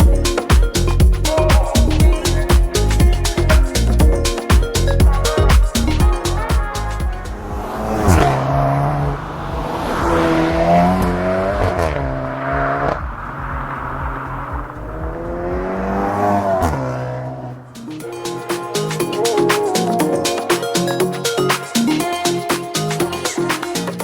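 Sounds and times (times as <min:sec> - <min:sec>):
car exhaust under hard acceleration: 0:06.3 - 0:17.8
engine pitch dropping at gear changes: 0:07.0 - 0:17.9.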